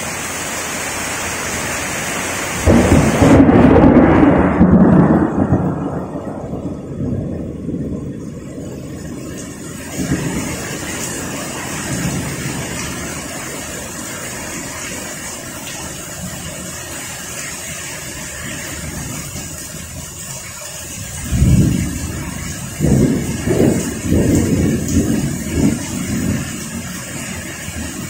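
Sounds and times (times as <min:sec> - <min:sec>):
heavy rain pouring: 0:00.0 - 0:28.0
strong wind: 0:00.0 - 0:28.0.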